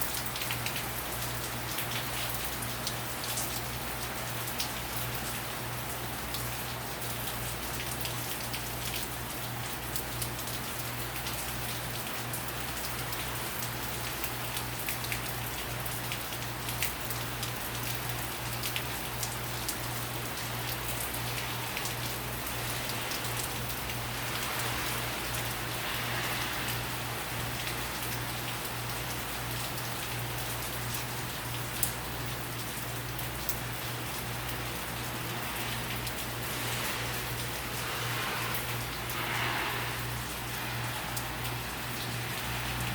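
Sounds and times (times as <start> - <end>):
close raindrops ticking: 0.0 - 42.9
heavy rain hissing: 21.1 - 28.4, 34.6 - 42.9.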